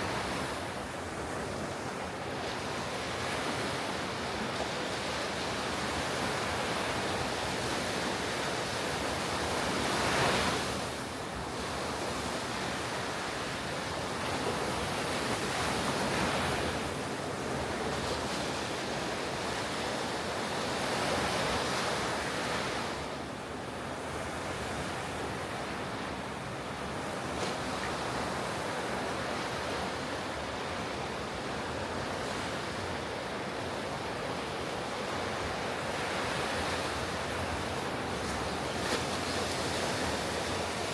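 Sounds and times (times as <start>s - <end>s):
ocean surf breaking on beach: 0.0s - 40.9s.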